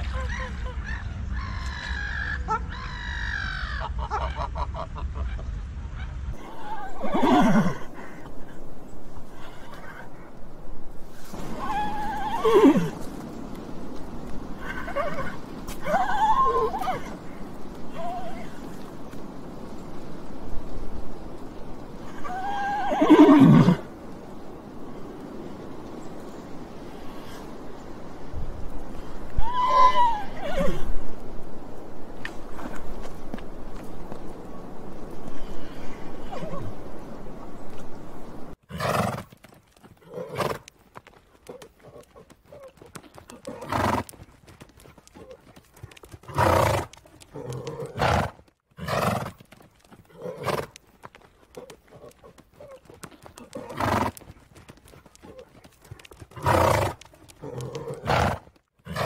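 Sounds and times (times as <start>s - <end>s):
horse whinnying: 6.4s - 7.9s, 11.4s - 13.0s, 22.1s - 23.8s.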